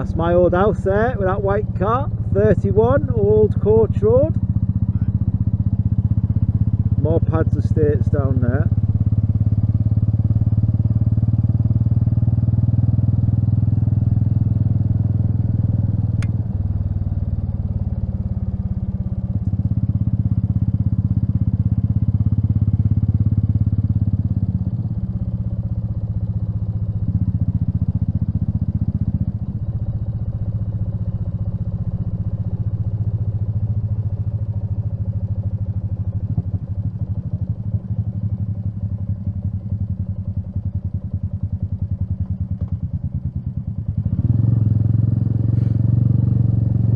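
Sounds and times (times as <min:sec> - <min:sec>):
motorcycle engine running: 0:00.0 - 0:46.9
sharp click: 0:16.2 - 0:16.4.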